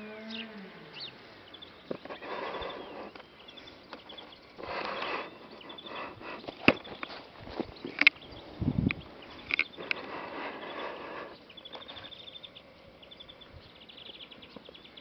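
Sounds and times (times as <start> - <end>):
small birds chirping: 0.0 - 15.0
rustling: 1.8 - 12.3.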